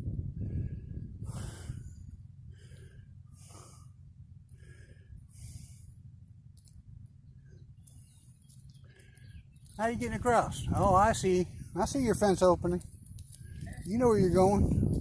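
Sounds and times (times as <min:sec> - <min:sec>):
low steady rumble: 0:00.0 - 0:15.0
person breathing close to microphone: 0:00.3 - 0:06.1.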